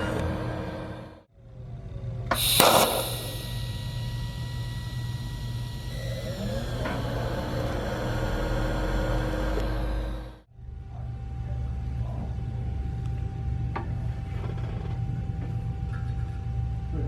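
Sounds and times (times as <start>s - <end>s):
welding arc hissing and buzzing: 2.3s - 10.3s.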